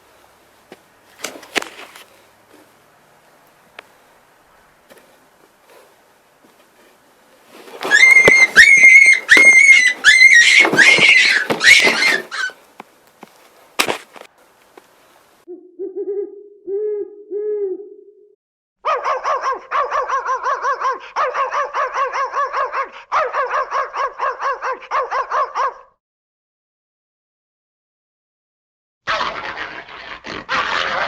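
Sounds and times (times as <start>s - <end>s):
owl hooting: 7.8s - 12.6s
owl trilling: 7.8s - 12.6s.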